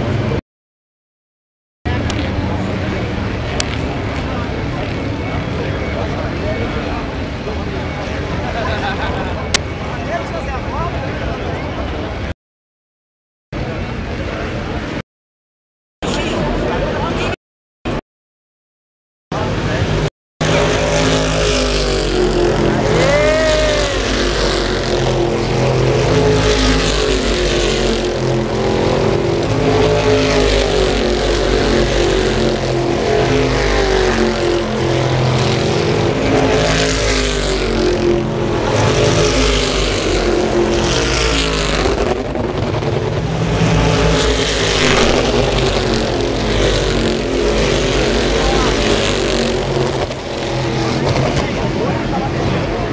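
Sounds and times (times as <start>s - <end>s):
race car engines passing: 19.4s - 52.9s.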